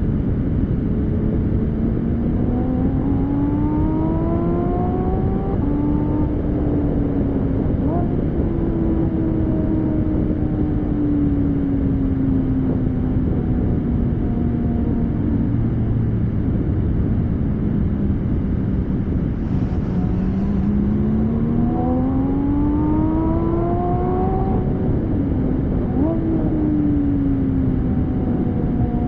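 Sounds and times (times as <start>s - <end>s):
sports car engine exhaust note: 0.0s - 29.0s
heavy rushing noise: 16.1s - 25.9s.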